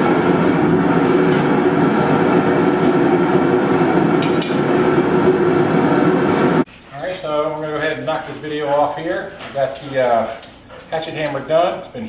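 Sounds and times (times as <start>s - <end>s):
low hum: 0.0s - 6.7s
workshop machinery roaring: 0.0s - 6.7s.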